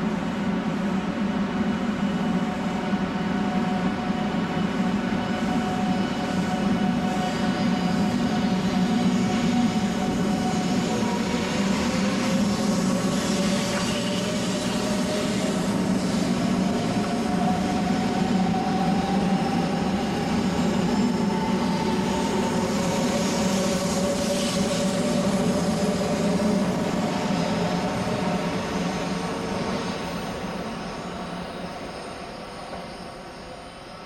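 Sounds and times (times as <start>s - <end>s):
train wheels running on rails: 0.0s - 34.0s.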